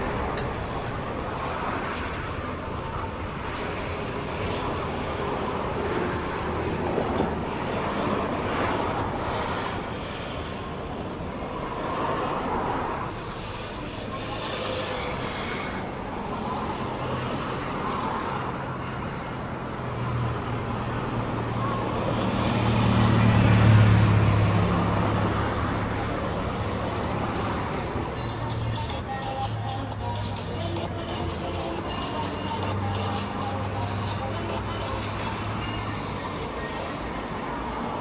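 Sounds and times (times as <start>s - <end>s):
street traffic: 0.0s - 38.0s.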